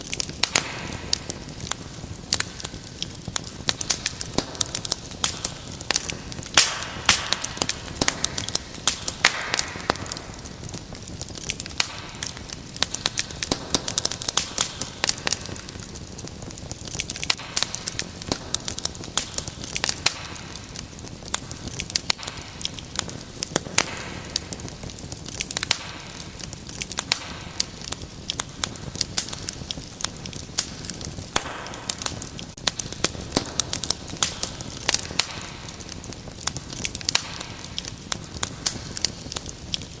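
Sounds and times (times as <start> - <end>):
wood fire crackling and popping: 0.0 - 40.0.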